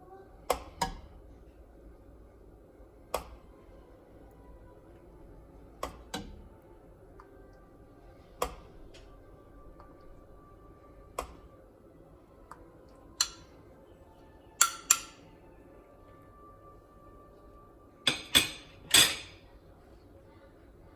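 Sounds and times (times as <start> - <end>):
kitchenware clinking and tapping: 13.2 - 13.5, 14.6 - 15.2, 18.0 - 19.4.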